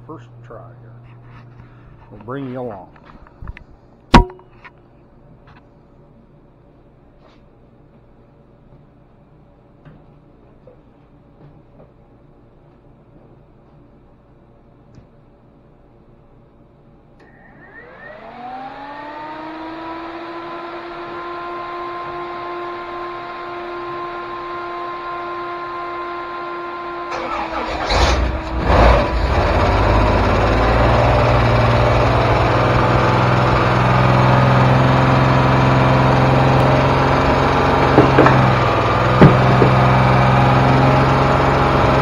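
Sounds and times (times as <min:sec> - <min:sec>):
electric starter whine: 0:17.2 - 0:42.0
engine running steadily: 0:17.2 - 0:42.0
engine pops: 0:37.3 - 0:40.4.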